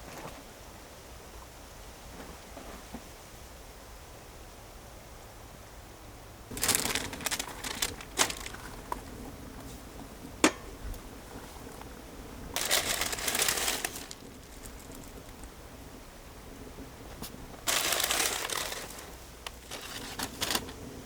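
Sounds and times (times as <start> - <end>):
crinkling and rustling: 6.5 - 10.1, 10.7 - 15.6, 17.0 - 20.8.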